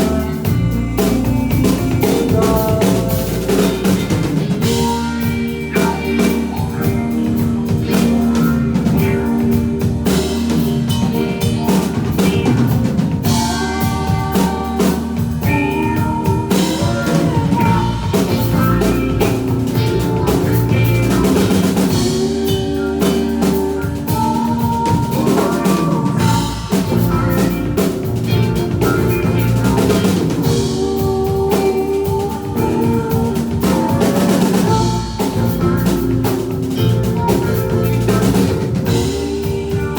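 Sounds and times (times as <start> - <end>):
band playing music: 0.0 - 39.9
drum kit beat: 0.0 - 39.9.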